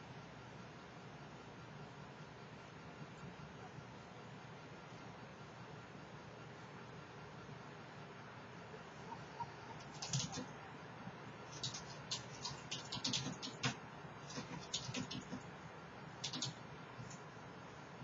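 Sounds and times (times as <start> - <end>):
keyboard key clicks: 16.2 - 16.6.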